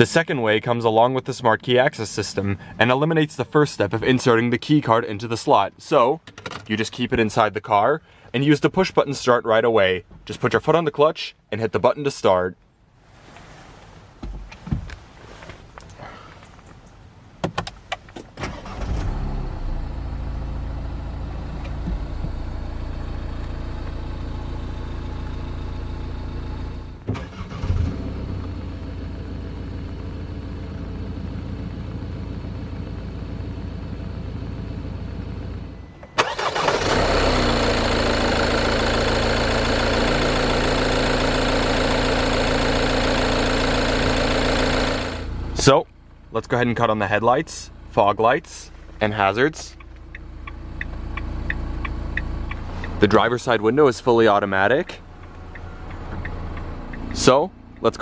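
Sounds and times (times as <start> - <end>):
diesel engine cranking and idling: 0.1 - 10.7, 14.9 - 58.0
starter clicks: 49.7 - 53.0.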